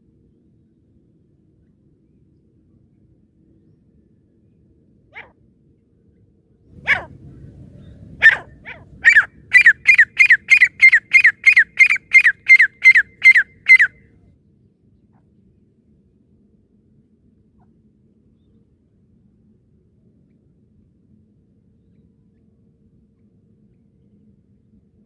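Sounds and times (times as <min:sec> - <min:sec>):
francolin calling: 0:08.2 - 0:14.0.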